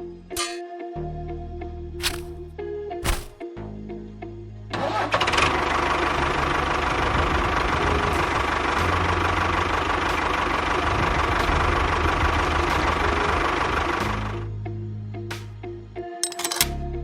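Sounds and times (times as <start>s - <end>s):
small machine engine running: 5.4s - 14.4s.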